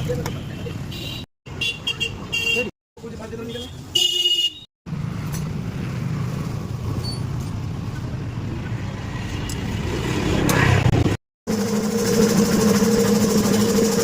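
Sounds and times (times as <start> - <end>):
vehicle engine rumbling: 4.9 - 14.0.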